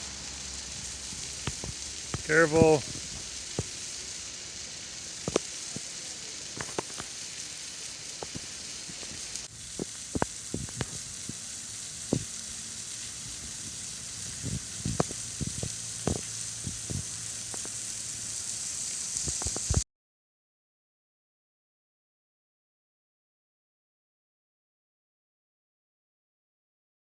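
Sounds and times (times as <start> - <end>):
waterfall hissing: 0.0 - 19.8.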